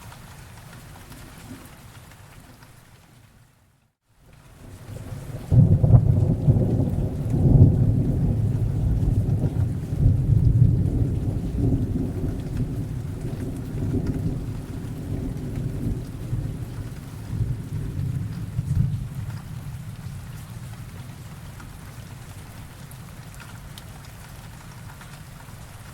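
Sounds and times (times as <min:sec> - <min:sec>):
steady rain: 0:00.0 - 0:25.9
thunder rumbling: 0:04.6 - 0:22.9.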